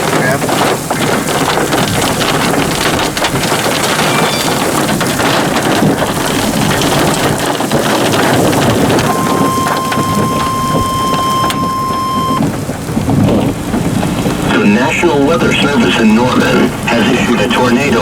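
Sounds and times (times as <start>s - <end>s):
heavy rain on a vehicle: 0.0s - 18.0s
steady alert tone beep: 9.1s - 12.4s.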